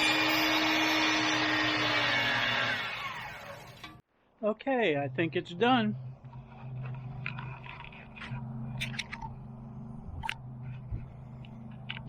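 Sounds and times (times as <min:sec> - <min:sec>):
steady low motor hum: 0:05.0 - 0:12.0.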